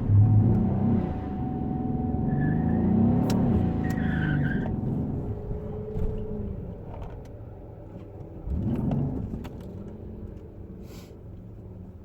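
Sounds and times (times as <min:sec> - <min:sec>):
car engine revving: 0:00.0 - 0:06.5.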